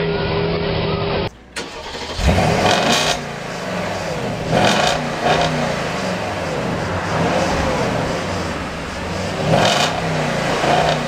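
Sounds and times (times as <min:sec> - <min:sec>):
car engine revving: 0:01.3 - 0:11.0.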